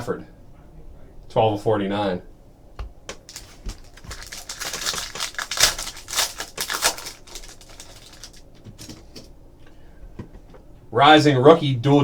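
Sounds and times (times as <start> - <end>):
cards and packaging crinkling: 3.1 - 9.3.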